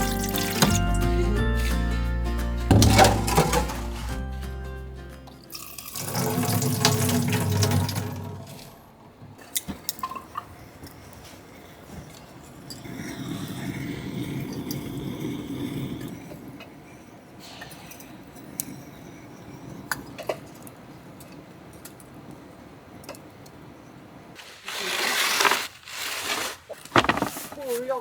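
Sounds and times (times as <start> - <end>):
objects clinking and knocking: 2.7 - 4.4, 26.9 - 27.6
noisy rustle: 24.3 - 28.0.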